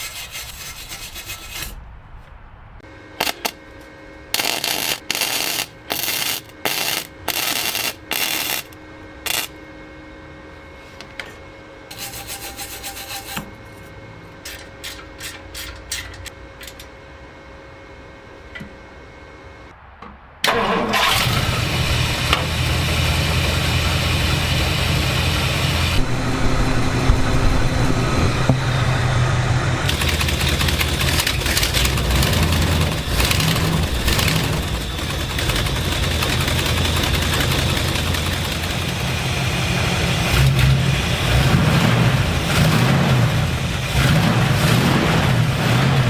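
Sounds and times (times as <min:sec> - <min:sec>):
car engine starting and running: 0:20.4 - 0:46.0
engine starter clicks: 0:20.5 - 0:21.6.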